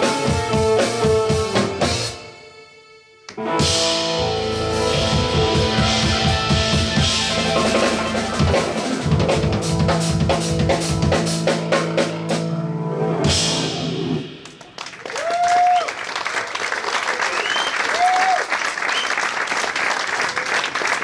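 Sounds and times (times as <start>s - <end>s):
live band music: 0.0s - 2.6s, 3.3s - 14.7s.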